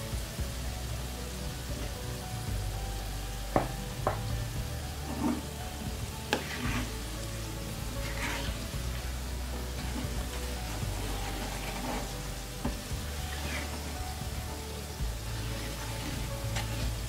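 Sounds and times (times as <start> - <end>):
frying sizzle in oil: 0.0 - 17.0
wooden spoon knocking on pan: 3.5 - 4.4.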